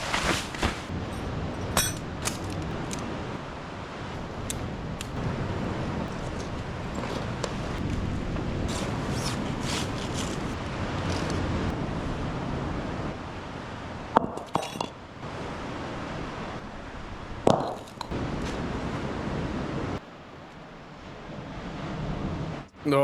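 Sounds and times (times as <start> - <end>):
tent rustling and clinking: 0.0 - 3.2, 6.1 - 11.7
surf: 0.0 - 23.0
wind: 0.0 - 23.0.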